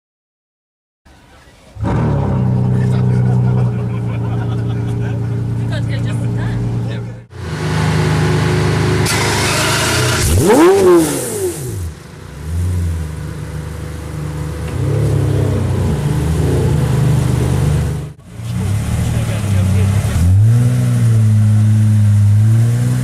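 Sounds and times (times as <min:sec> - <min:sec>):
car engine idling and revving: 0:01.2 - 0:23.0.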